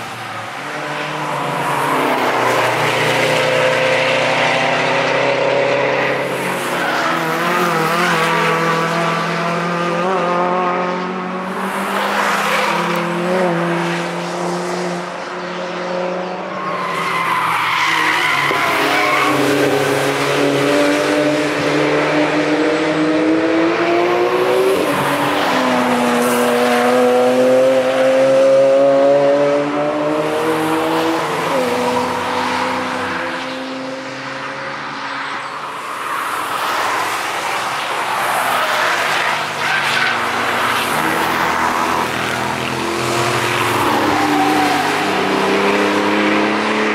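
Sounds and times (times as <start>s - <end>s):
cars passing at speed: 0.0s - 46.9s
tires squealing: 16.6s - 20.6s, 35.9s - 42.2s, 42.9s - 46.1s.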